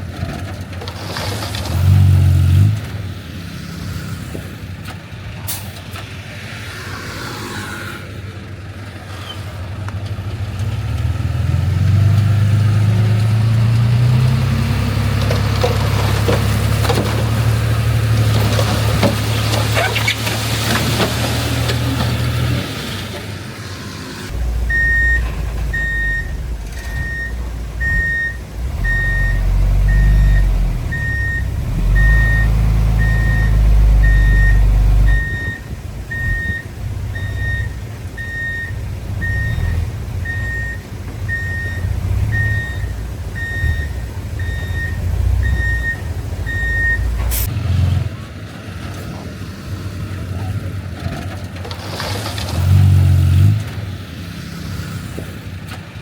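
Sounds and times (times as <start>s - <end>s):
diesel engine drone: 0.0s - 56.0s
reversing alarm beeping: 24.7s - 47.2s.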